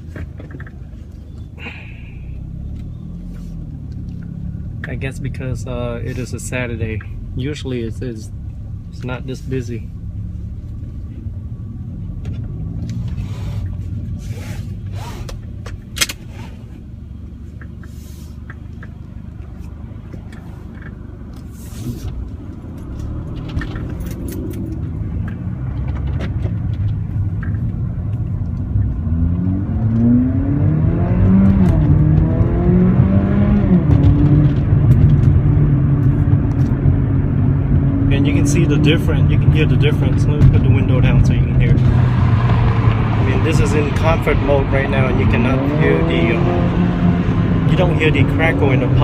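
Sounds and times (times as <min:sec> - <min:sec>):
car engine accelerating: 0:00.0 - 0:49.0.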